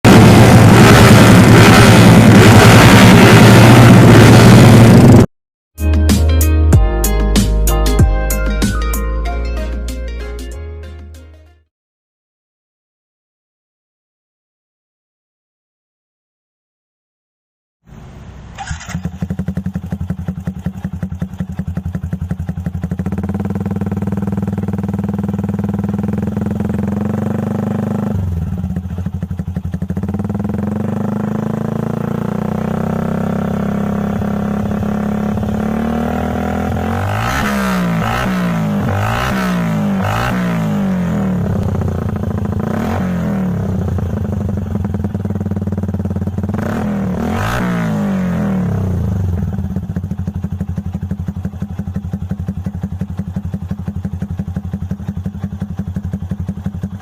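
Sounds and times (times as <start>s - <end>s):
motorcycle engine revving: 0.0s - 5.3s, 17.9s - 57.0s
motorcycle engine idling: 17.9s - 37.3s, 40.0s - 47.2s, 48.6s - 57.0s.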